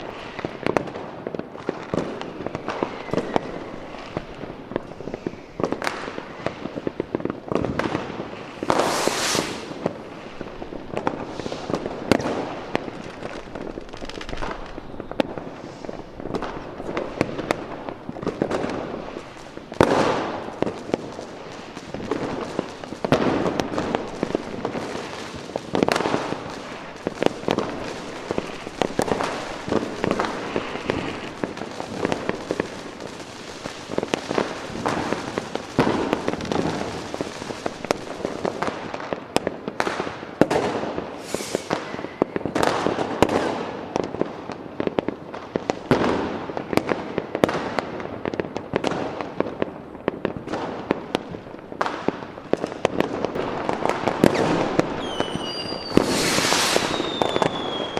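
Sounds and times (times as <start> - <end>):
fireworks bangs and crackle: 0.0 - 57.9.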